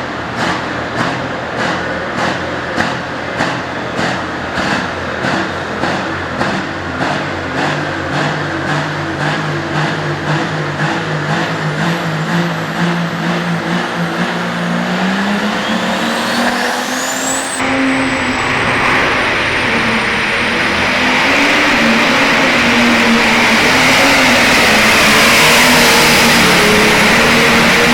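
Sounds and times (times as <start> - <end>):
diesel tractor running hard: 0.0 - 27.9
turbocharger whine: 0.1 - 27.9
hiss with high whistle: 13.9 - 22.4.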